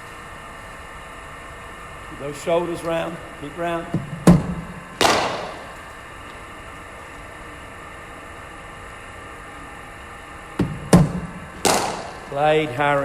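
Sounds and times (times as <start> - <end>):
faint steady hum: 0.0 - 13.0
bowling machine delivering ball: 3.8 - 5.9, 10.6 - 13.0
bat striking cricket ball: 4.0 - 5.9, 10.6 - 12.3.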